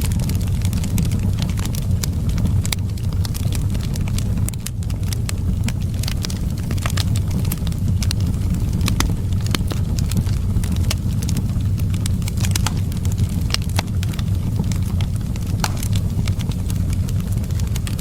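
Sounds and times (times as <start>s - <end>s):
low rumble of wind: 0.0s - 18.0s
wood fire crackling: 0.0s - 18.0s.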